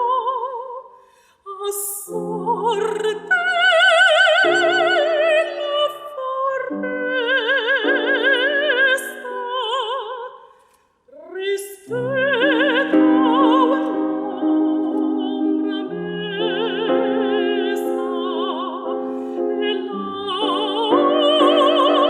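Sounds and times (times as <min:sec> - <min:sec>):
piano chords: 0:11.9 - 0:22.0.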